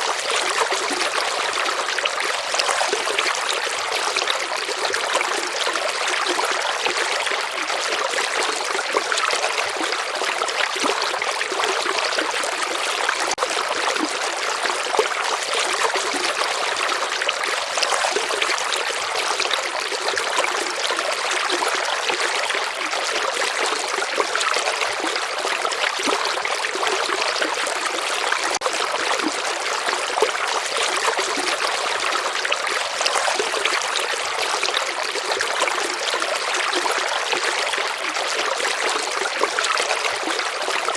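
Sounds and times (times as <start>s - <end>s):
river rippling over stones: 23.6s - 40.9s.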